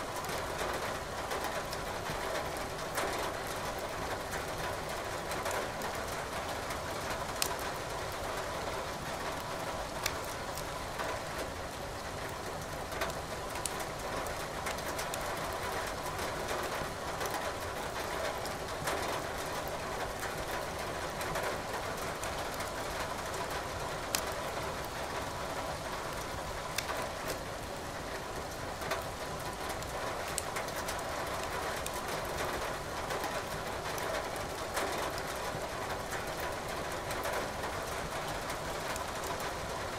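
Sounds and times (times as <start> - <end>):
firewood crackling in fireplace: 7.3 - 7.7, 10.0 - 10.7, 24.0 - 24.3, 26.7 - 27.4, 30.2 - 32.5.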